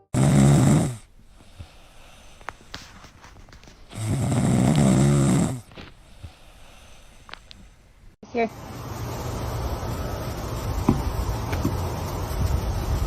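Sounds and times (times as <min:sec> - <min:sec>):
dog snoring: 0:00.2 - 0:02.2, 0:03.9 - 0:05.8.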